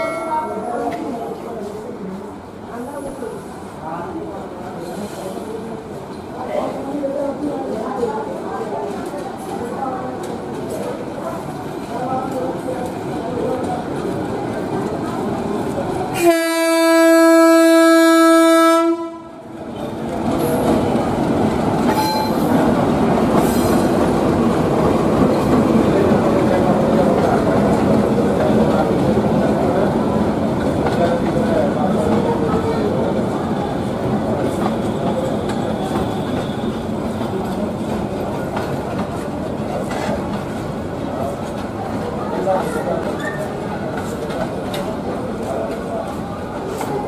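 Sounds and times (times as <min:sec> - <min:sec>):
train running past on rails: 0:00.0 - 0:47.0
locomotive horn long blast: 0:16.2 - 0:19.4.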